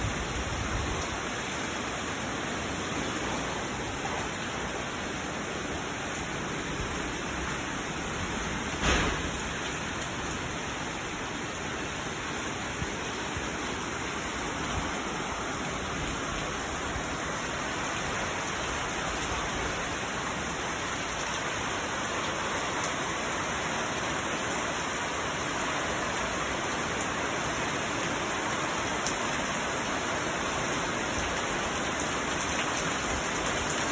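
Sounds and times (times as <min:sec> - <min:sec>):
heavy rain falling: 0:00.0 - 0:33.9
sharp knock: 0:08.8 - 0:09.6.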